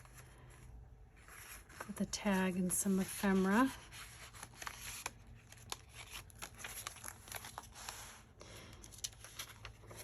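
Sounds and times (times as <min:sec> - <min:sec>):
paper rustling and crinkling: 0:00.0 - 0:10.0.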